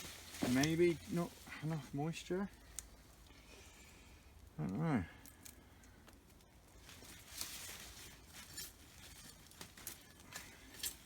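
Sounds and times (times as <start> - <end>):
soil rustling dug by hand: 0.0 - 3.3, 5.2 - 11.0
clicks and patters of earth: 0.0 - 11.0.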